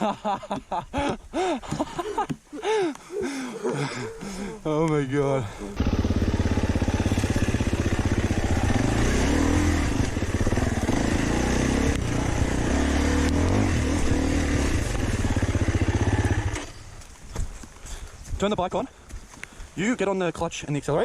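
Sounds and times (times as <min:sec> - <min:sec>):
dirt bike engine revving: 0:05.7 - 0:16.8.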